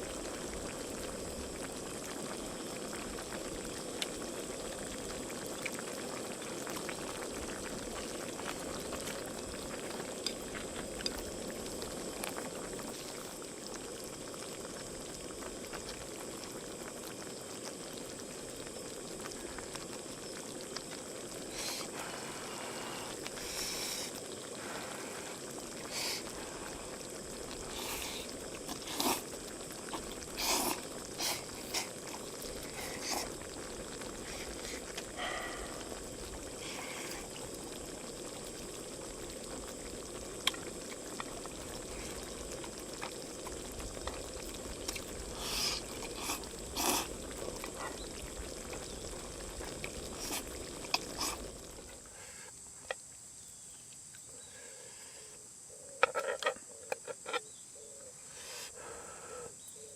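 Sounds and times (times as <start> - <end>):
liquid boiling: 0.0 - 53.2
small pops: 40.4 - 41.4.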